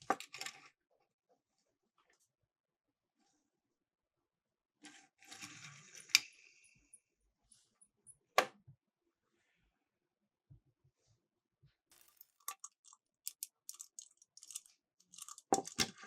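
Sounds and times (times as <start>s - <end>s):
toy cars rattling on plastic track: 11.9s - 16.0s.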